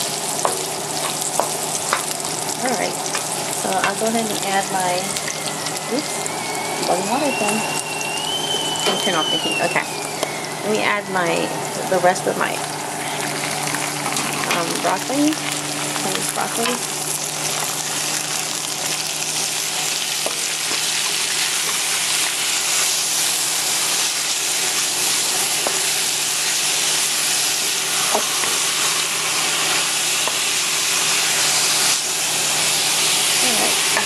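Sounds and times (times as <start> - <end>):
vegetables sizzling in a pan: 0.0 - 34.0.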